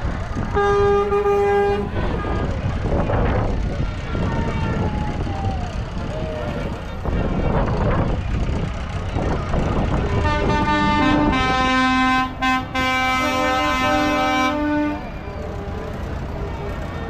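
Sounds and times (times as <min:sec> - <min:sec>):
passing vehicles: 0:00.0 - 0:17.0
multi-tone vehicle horn: 0:00.5 - 0:02.6, 0:10.0 - 0:17.0.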